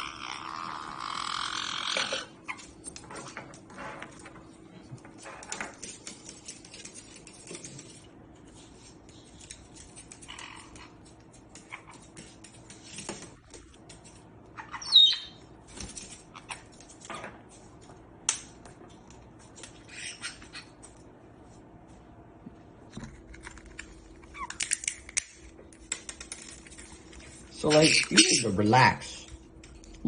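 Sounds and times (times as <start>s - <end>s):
parrot squawk: 0.0s - 2.3s, 14.6s - 15.4s, 27.7s - 28.6s
beaks cracking nutshells: 23.3s - 26.6s.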